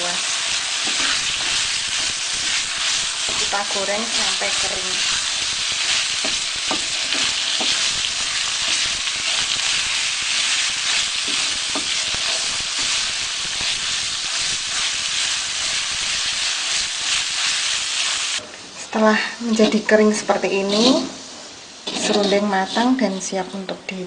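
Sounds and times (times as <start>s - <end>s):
food sizzling in a wok: 0.0s - 23.7s
spatula scraping pan: 0.2s - 15.0s, 21.8s - 23.3s.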